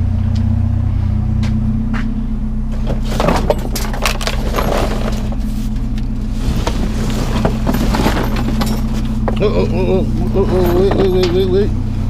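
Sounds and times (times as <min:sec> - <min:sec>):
low engine hum: 0:00.0 - 0:12.0
scrap items clattering: 0:02.7 - 0:11.6.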